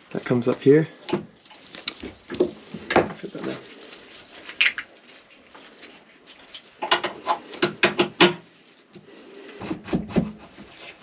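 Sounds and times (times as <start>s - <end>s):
hose handling clicks and knocks: 6.8s - 8.5s
rubbing and dull thumps: 9.5s - 11.0s.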